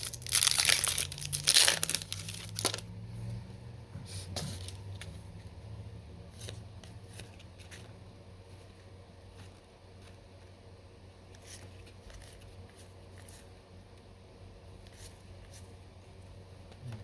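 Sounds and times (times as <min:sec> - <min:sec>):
foil wrapper crinkling and tearing: 0:00.0 - 0:02.8.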